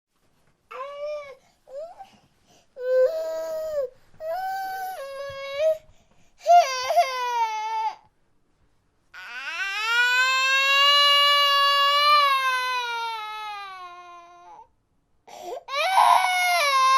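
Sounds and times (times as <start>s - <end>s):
baby crying and wailing: 6.4s - 8.0s, 9.2s - 14.6s, 15.6s - 16.9s.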